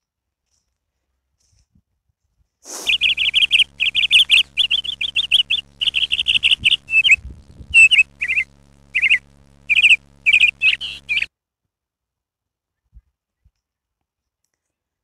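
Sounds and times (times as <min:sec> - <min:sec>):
faint steady hum: 0:02.8 - 0:11.3
small songbird chirping: 0:02.8 - 0:11.3.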